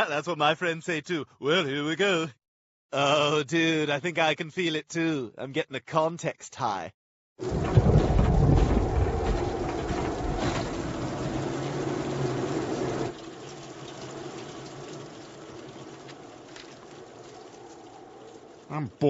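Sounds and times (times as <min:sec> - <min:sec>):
wind and rain rushing: 0:07.4 - 0:18.7.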